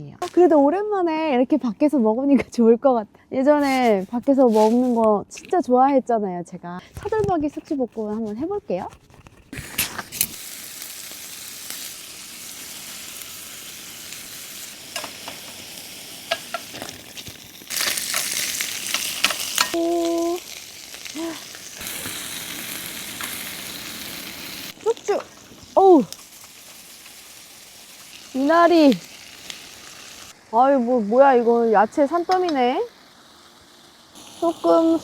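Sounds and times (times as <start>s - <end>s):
meat sizzling in a pan: 9.6s - 35.0s.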